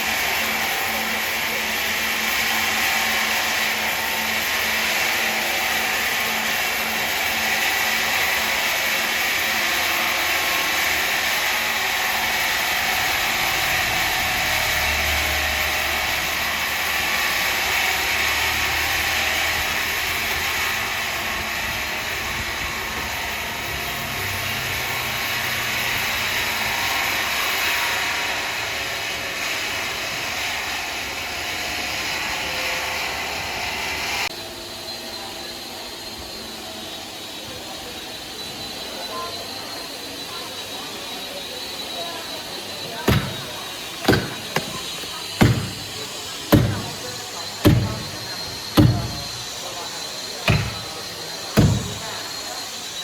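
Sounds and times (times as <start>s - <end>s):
woodworking machinery whirring: 43.1s - 52.4s.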